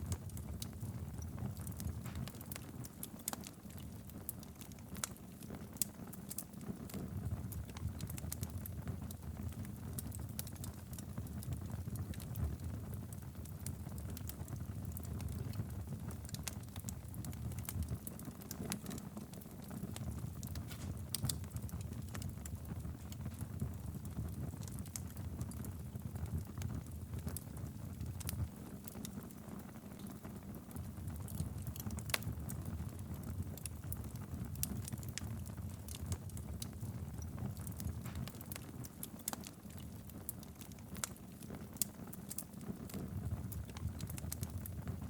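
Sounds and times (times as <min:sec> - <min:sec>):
fire crackles and pops: 0:00.0 - 0:45.0
wood fire burning: 0:00.0 - 0:45.0.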